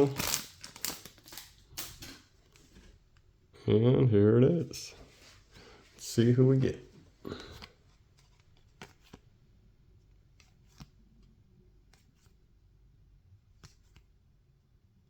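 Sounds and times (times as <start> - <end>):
cards and packaging clicking: 0.0 - 2.6, 7.4 - 9.2.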